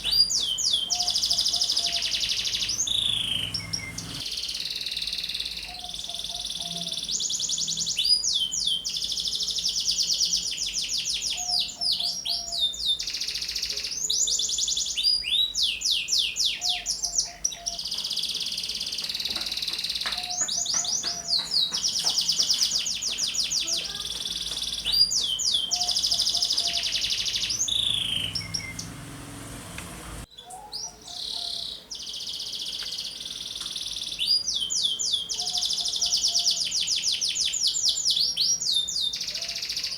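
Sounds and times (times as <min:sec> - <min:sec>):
canary singing trills: 0:00.0 - 0:04.2, 0:14.3 - 0:37.6.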